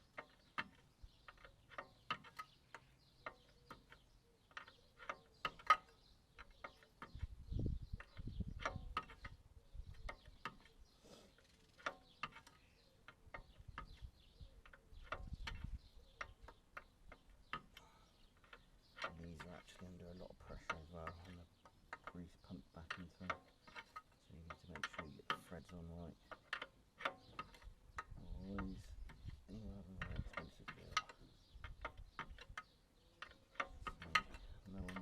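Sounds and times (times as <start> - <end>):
metallic ratchet clicks: 0.0 - 10.8, 20.4 - 35.0
low rumbling handling noise: 3.3 - 10.9, 11.8 - 35.0.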